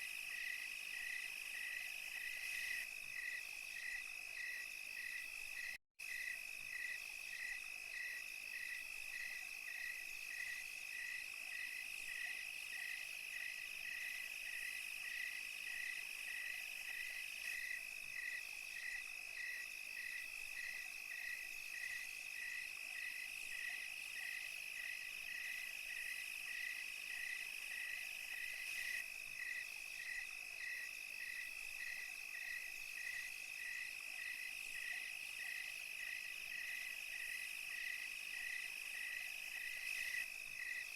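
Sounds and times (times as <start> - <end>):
insects trilling: 0.0 - 40.9
pulsing insect chirp: 0.0 - 40.9.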